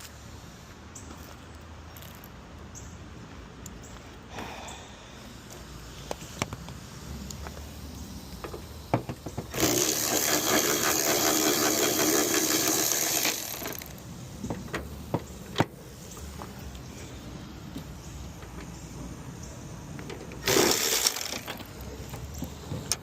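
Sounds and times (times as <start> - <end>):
loud rasping noise: 9.5 - 14.0, 20.4 - 21.6.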